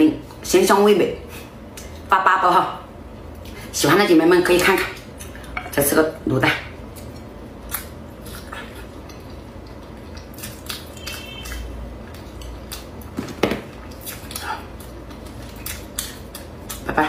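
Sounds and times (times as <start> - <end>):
person chewing food: 6.8 - 17.0.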